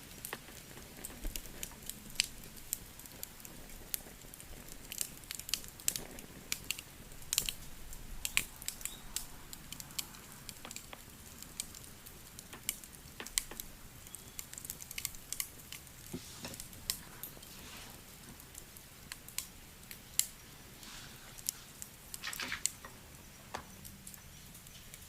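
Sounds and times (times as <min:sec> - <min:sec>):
wood fire crackling: 0:00.0 - 0:25.0
scratchy rustles: 0:16.1 - 0:18.2.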